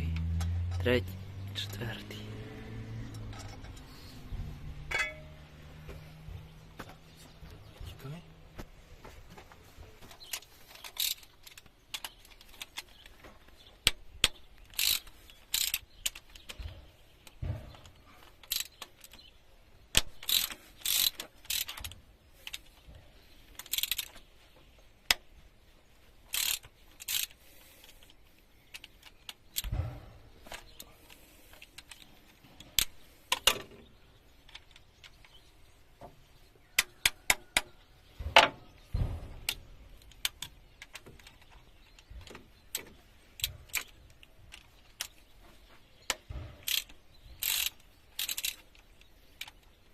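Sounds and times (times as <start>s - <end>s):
metal hand tools clinking: 4.9s - 5.4s
ratchet wrench clicking: 10.8s - 12.8s, 14.6s - 16.4s, 18.4s - 19.2s, 19.9s - 22.6s, 23.6s - 24.2s, 26.3s - 27.4s, 46.6s - 49.6s.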